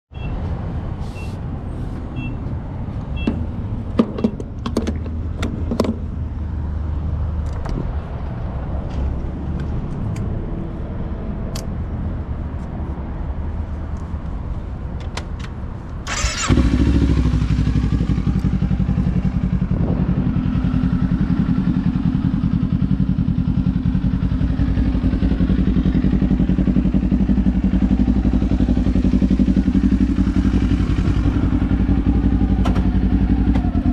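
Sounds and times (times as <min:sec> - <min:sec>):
motorcycle engine starting and idling: 0:15.2 - 0:33.9.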